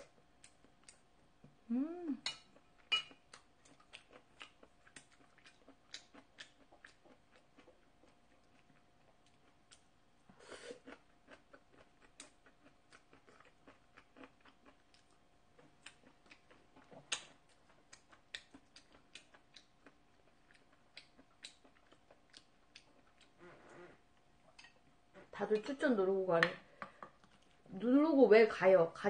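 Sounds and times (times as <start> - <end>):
faint wet chewing clicks: 0.0 - 1.1, 2.6 - 9.9, 10.8 - 23.4, 24.1 - 25.0.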